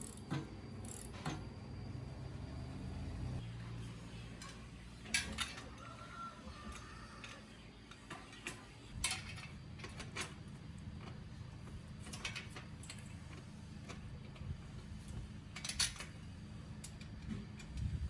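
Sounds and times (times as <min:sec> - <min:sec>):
metallic clicks and clinks: 0:00.0 - 0:01.4.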